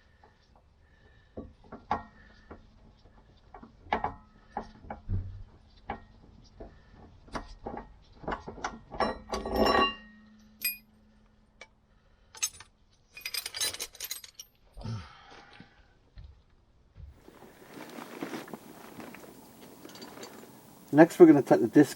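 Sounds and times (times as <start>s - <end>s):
metal tools clinking and knocking: 8.9s - 10.8s, 12.4s - 14.7s, 19.6s - 20.6s.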